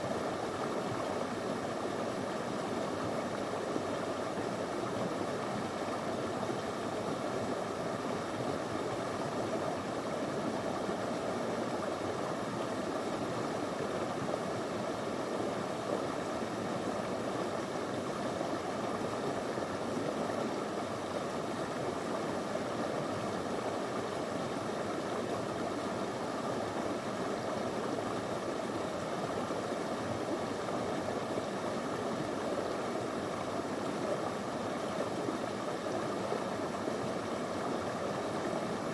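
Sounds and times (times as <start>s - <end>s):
stream flowing over stones: 0.0s - 38.9s.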